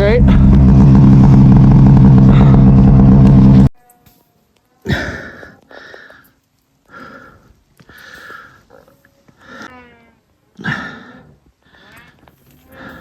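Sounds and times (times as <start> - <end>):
snowmobile engine running: 0.0 - 3.7
heavy breaths: 4.9 - 9.7, 10.6 - 13.0.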